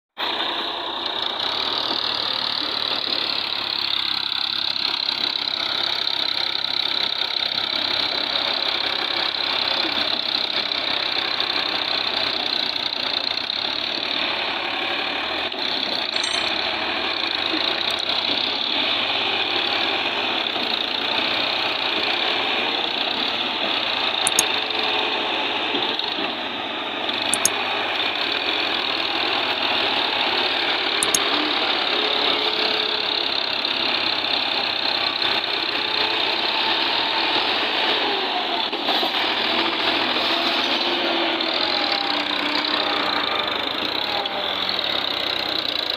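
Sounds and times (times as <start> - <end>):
diesel tractor engines running: 0.2 - 45.9
sharp clicks: 16.2 - 16.7, 24.3 - 24.5, 27.4 - 27.6, 31.0 - 31.2.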